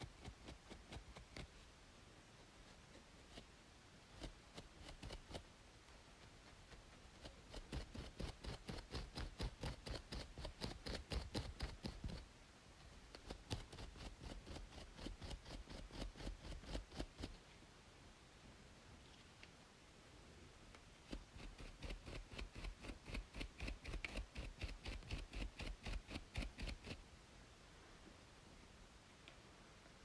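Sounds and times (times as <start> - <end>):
scalp scratching: 0.0 - 1.6, 2.7 - 3.5, 4.1 - 5.5, 6.2 - 12.2, 13.2 - 17.4, 21.0 - 27.0
faint white-noise hiss: 0.0 - 30.0.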